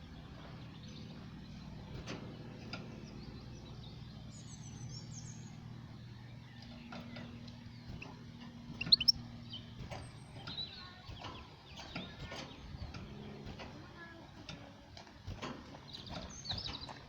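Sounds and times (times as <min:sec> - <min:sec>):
low steady hum: 0:03.1 - 0:09.8
bird chirping: 0:08.7 - 0:09.7.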